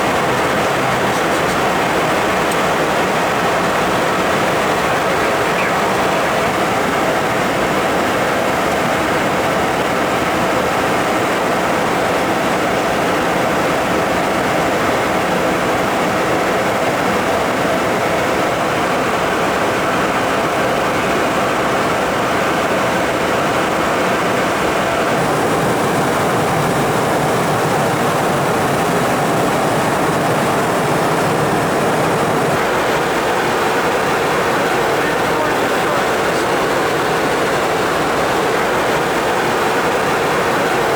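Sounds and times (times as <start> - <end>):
jet in flight roaring: 0.0 - 40.9.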